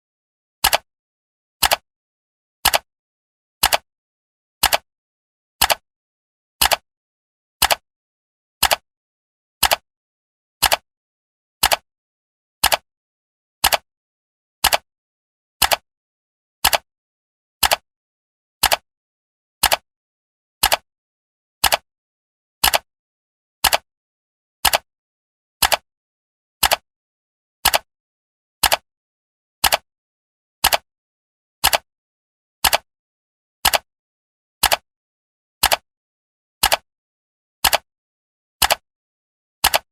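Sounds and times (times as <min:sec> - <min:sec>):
clock ticking: 0:04.6 - 0:04.8, 0:08.6 - 0:08.8, 0:20.6 - 0:20.8, 0:21.6 - 0:21.8, 0:24.6 - 0:24.8, 0:25.6 - 0:25.8, 0:27.6 - 0:27.9, 0:28.6 - 0:28.8, 0:29.6 - 0:29.8, 0:30.6 - 0:30.8, 0:31.6 - 0:31.8, 0:32.6 - 0:32.9, 0:33.6 - 0:33.9, 0:34.6 - 0:34.8, 0:35.6 - 0:35.8, 0:36.6 - 0:36.8, 0:37.6 - 0:37.9, 0:38.6 - 0:38.8, 0:39.6 - 0:39.9.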